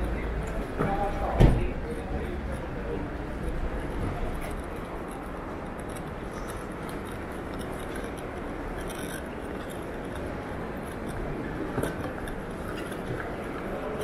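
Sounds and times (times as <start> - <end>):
faint clinks and ticks: 1.8 - 14.0.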